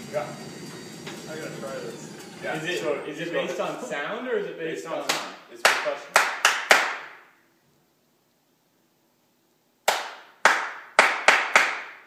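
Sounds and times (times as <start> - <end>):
hand claps: 5.0 - 7.2, 9.8 - 12.0.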